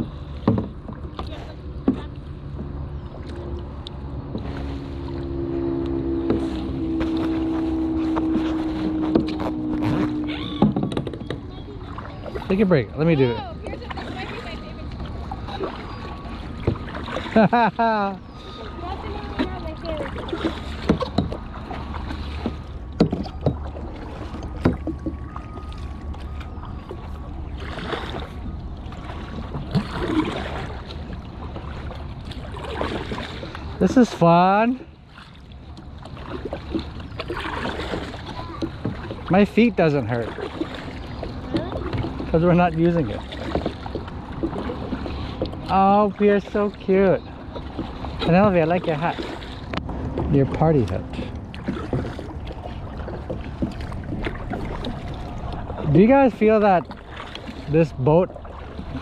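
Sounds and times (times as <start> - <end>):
paddles knocking against kayak: 0.0 - 3.5, 5.8 - 34.4, 35.1 - 59.0
wind rumbling on microphone: 0.0 - 17.5
steady engine hum: 0.0 - 59.0
low rumble: 1.6 - 33.8.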